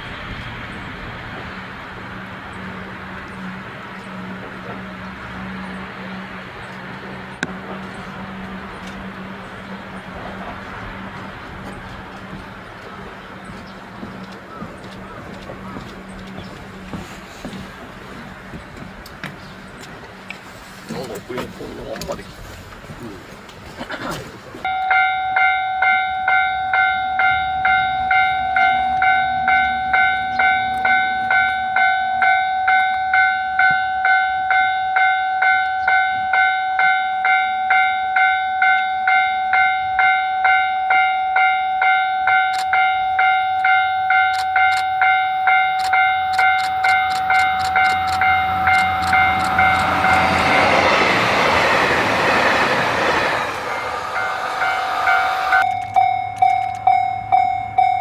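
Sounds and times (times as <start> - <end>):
train rushing past: 0.0 - 23.8, 44.1 - 56.2
train wheel clicks: 11.1 - 22.8, 42.2 - 57.5
level crossing alarm ringing: 24.7 - 58.0.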